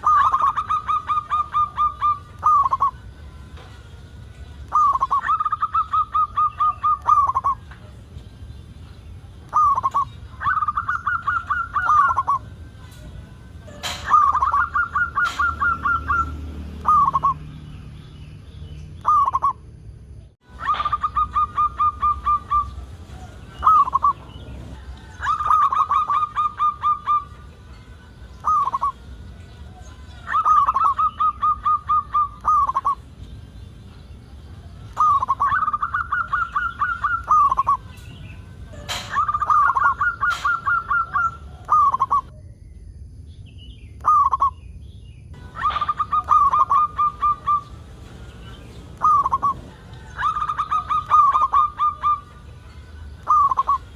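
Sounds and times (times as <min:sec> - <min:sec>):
dove cooing: 0:00.0 - 0:03.0, 0:04.6 - 0:08.0, 0:09.4 - 0:17.4, 0:19.0 - 0:19.6, 0:20.5 - 0:27.5, 0:28.4 - 0:33.1, 0:34.6 - 0:42.3, 0:45.4 - 0:53.9.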